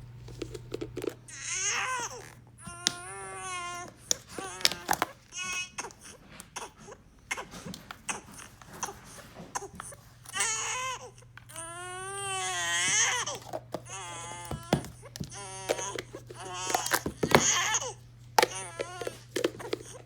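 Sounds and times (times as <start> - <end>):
steady low hum: 0.0 - 20.0
newborn baby crying: 1.3 - 7.5, 10.3 - 19.2.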